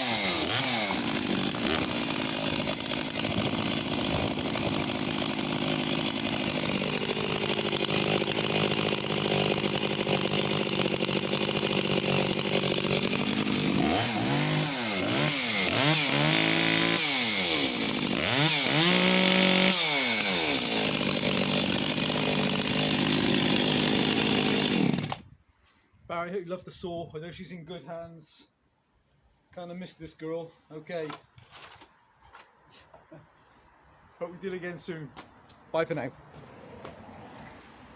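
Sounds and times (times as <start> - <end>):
chainsaw idling and revving: 0.0 - 25.3.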